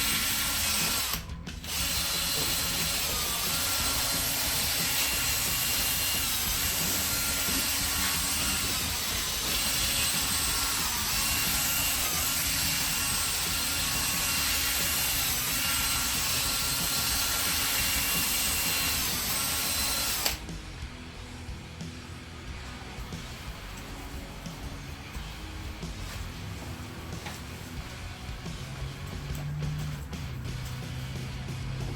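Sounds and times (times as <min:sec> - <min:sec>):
electric drill motor whine: 0:00.0 - 0:20.5.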